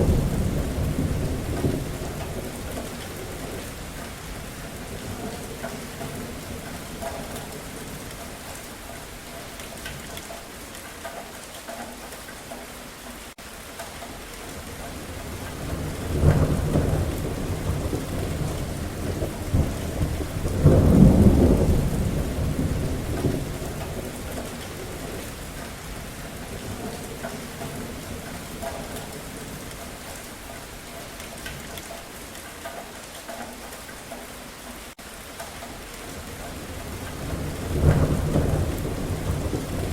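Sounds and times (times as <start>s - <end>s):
thunder rumbling: 0.0s - 8.6s, 14.6s - 30.2s, 36.2s - 39.9s
steady rain falling: 0.0s - 39.9s.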